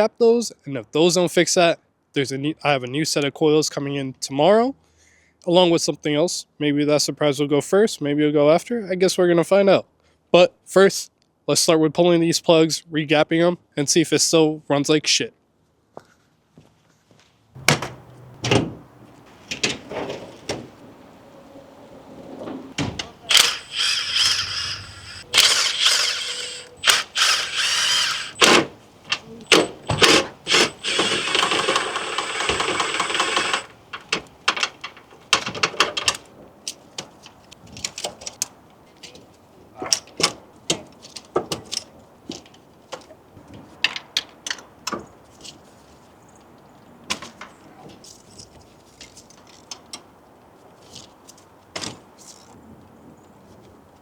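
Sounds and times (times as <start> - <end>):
cordless impact wrench: 23.3 - 28.7, 29.5 - 33.8.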